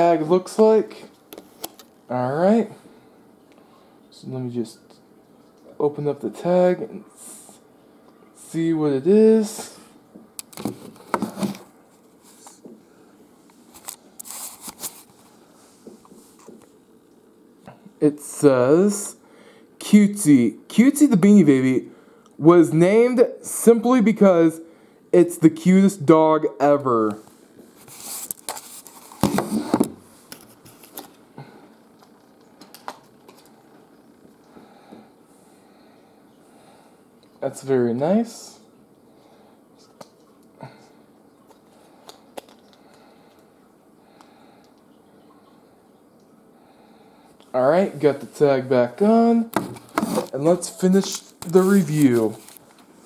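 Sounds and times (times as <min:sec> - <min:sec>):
papery rustling: 0:13.7 - 0:16.4, 0:27.2 - 0:31.2, 0:49.6 - 0:52.9
paper tag and plush toy rustling: 0:49.7 - 0:52.7.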